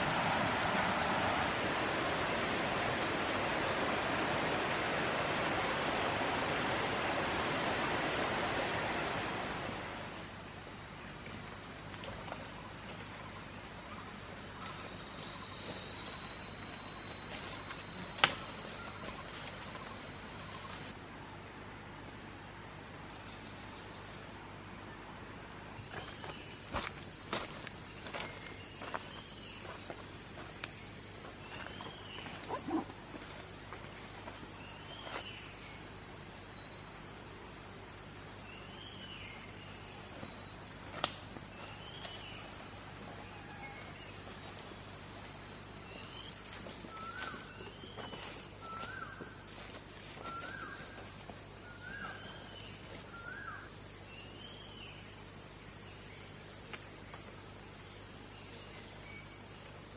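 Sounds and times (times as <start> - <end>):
high insect chorus: 0.0 - 59.9
lower chirp: 12.6 - 20.9.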